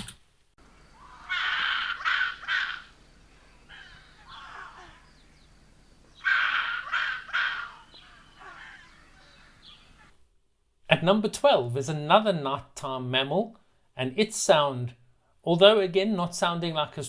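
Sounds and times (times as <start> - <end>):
rock hyrax harsh rasping calls: 0.9 - 5.4, 6.1 - 10.1.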